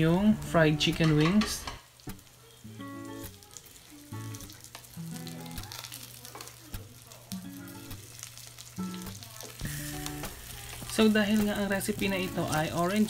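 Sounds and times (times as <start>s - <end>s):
chicken sizzling in hot oil: 0.0s - 13.0s
soft background music: 0.0s - 13.0s.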